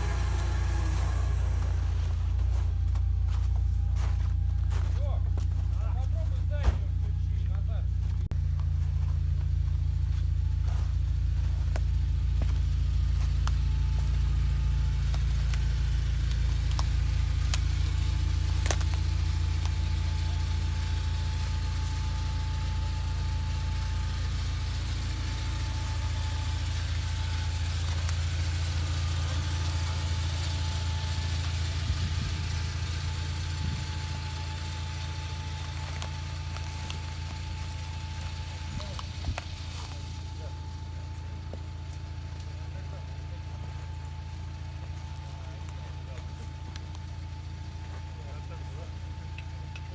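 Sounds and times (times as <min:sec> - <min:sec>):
faint steady whine: 0:00.0 - 0:49.9
vehicle engine droning: 0:00.0 - 0:49.9.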